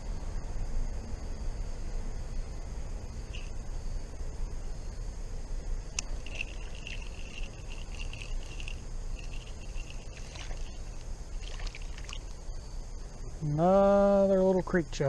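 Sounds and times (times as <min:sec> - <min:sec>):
creek water sloshing: 0:06.1 - 0:12.6.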